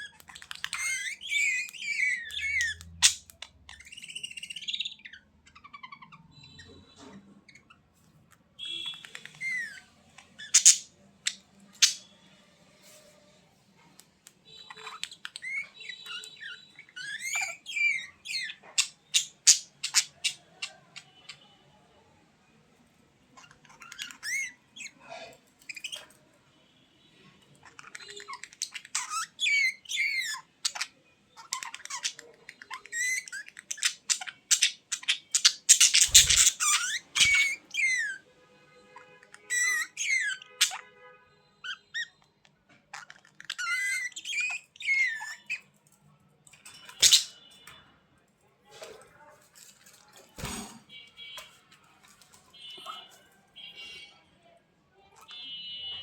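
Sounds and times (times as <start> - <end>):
budgerigars chattering: 32.9 - 38.1.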